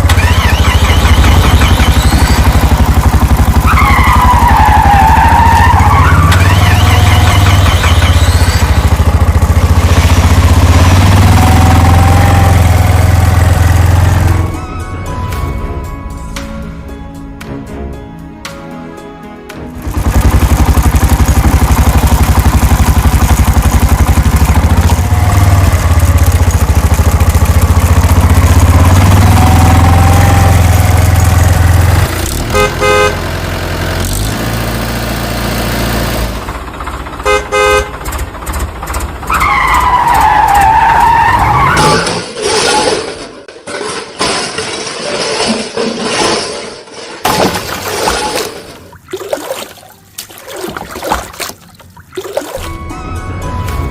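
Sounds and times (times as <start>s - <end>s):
cartoon engine sound: 0.0s - 14.6s
short horn honks: 32.5s - 33.2s, 37.2s - 38.0s.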